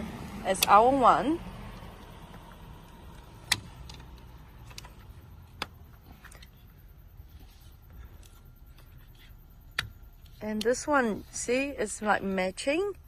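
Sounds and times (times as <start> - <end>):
low steady rumble: 0.0 - 13.0
sharp clicks: 1.7 - 6.5.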